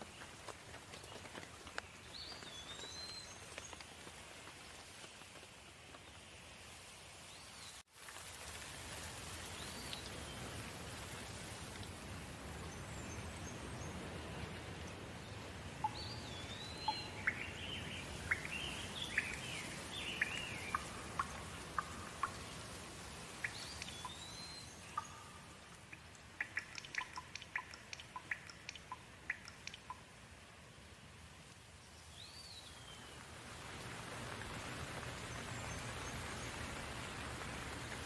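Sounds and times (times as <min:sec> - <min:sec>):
sharp drip-like ticks: 0:00.0 - 0:05.5, 0:08.0 - 0:30.4, 0:31.4 - 0:32.2
steady rain: 0:00.0 - 0:38.0.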